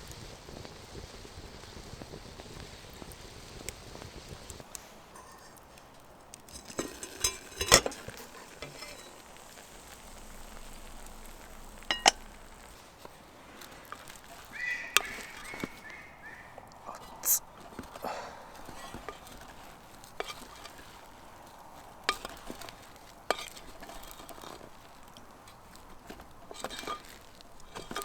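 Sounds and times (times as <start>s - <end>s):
low steady hiss: 0.0s - 28.0s
metal cookware clinking: 5.0s - 12.7s, 13.7s - 15.9s, 16.9s - 28.0s.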